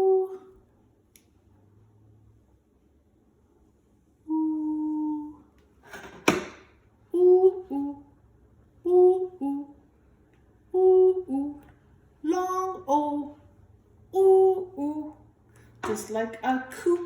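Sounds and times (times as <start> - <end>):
person humming: 0.0 - 0.6, 4.2 - 5.5, 7.1 - 8.1, 8.8 - 9.8, 10.7 - 13.4, 14.1 - 15.2.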